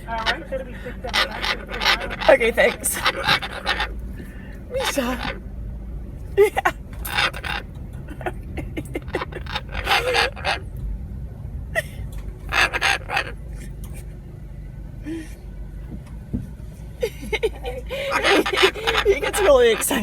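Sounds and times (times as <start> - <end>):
cockatoo harsh calls: 0.0 - 5.4, 7.0 - 8.2, 9.0 - 10.6, 12.5 - 14.1, 18.0 - 20.0
car engine idling: 0.0 - 20.0.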